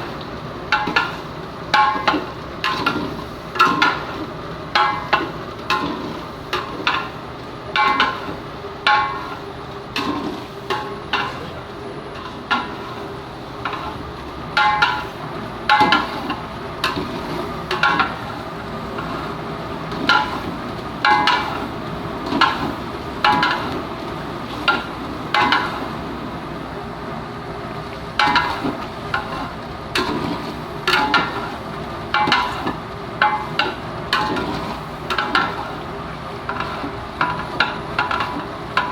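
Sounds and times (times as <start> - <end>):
frying sizzle: 0.0 - 38.9
metal spoon clanking on pot: 28.2 - 30.3, 30.9 - 31.5, 36.5 - 38.9.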